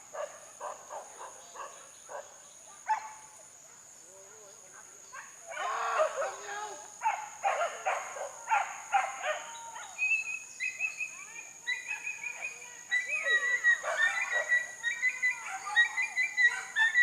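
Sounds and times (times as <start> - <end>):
dogs yelping and baying: 12.9 - 17.0.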